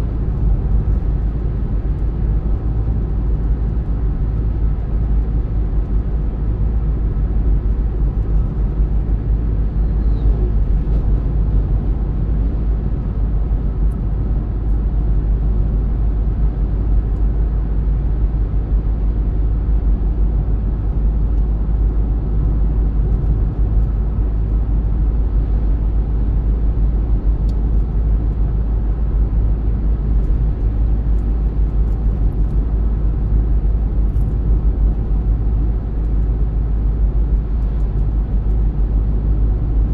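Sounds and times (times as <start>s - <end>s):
deep road rumble: 0.0s - 39.9s.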